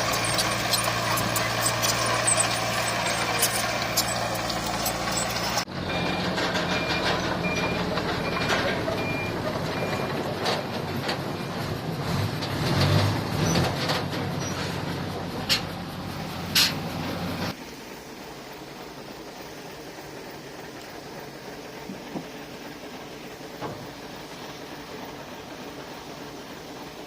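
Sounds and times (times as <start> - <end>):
reversing alarm beeping: 0.0 - 10.2
diesel engine running: 0.0 - 27.0.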